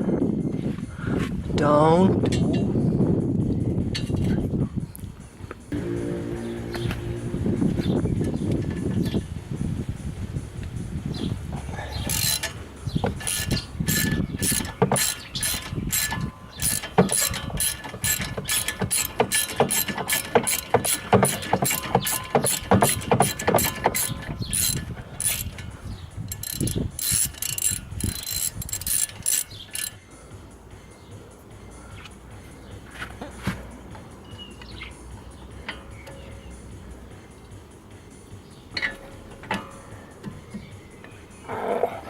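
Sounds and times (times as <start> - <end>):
hand ratchet clicking: 12.0 - 30.0.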